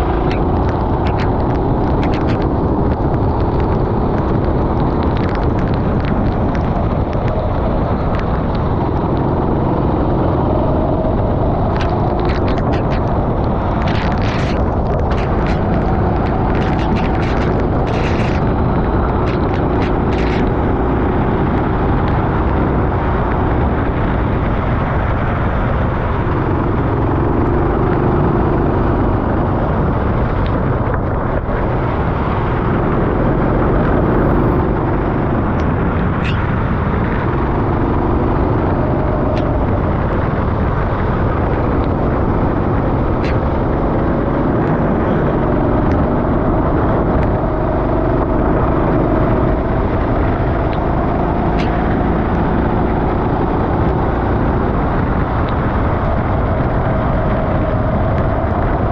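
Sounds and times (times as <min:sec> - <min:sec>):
kart engine running: 0:08.7 - 0:58.9
loud rushing noise: 0:10.5 - 0:22.2.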